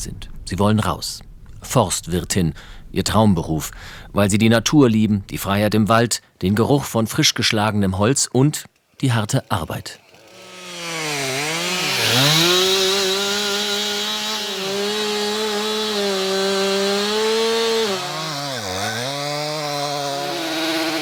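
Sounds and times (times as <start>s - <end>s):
chainsaw engine at high revs: 9.5s - 21.0s.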